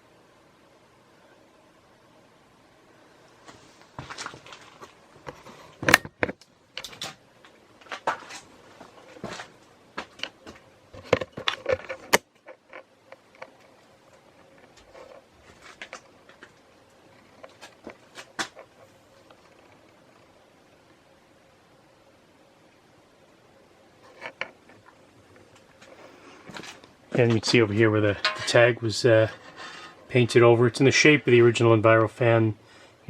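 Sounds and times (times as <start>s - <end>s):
handling noise clicks and rustling: 3.9s - 16.6s, 24.1s - 29.6s.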